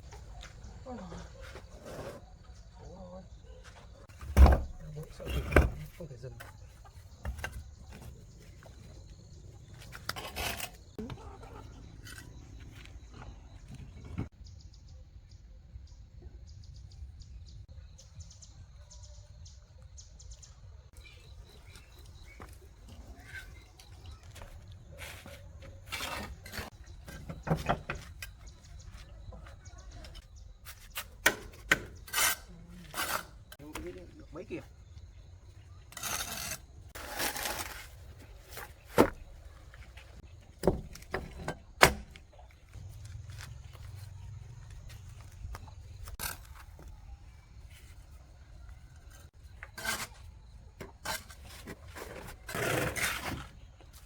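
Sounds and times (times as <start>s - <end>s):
small birds chirping: 0.0s - 37.0s
rustling scraping noises: 9.6s - 14.3s, 21.4s - 31.2s, 35.6s - 41.5s, 44.9s - 54.0s.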